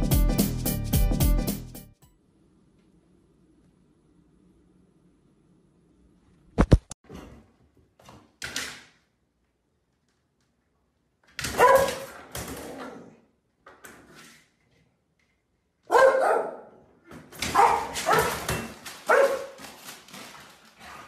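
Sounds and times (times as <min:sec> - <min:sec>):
dog barking and whining: 0:11.5 - 0:13.2, 0:15.9 - 0:16.8, 0:17.4 - 0:19.6.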